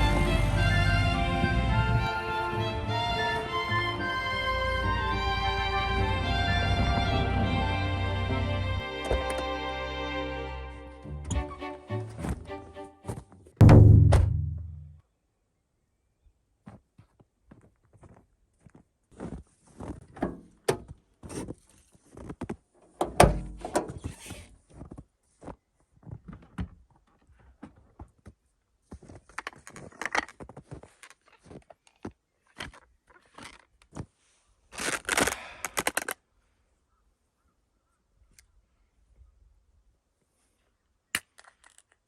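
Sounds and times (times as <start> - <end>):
irregular knocks and thunks: 13.6 - 14.9.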